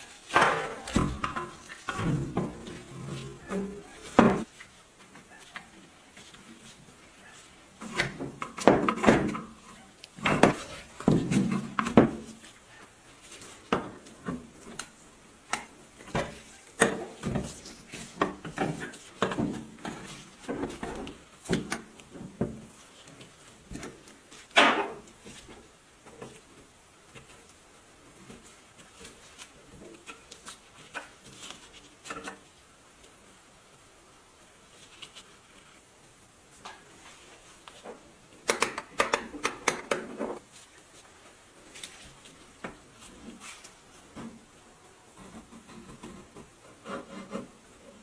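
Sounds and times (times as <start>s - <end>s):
machine parts knocking and scraping: 0.3s - 3.4s.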